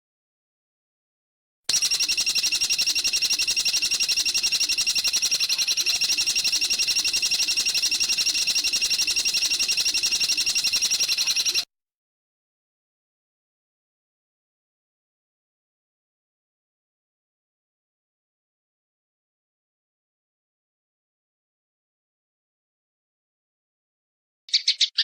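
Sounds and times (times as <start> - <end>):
bird trilling high notes: 24.5 - 25.0.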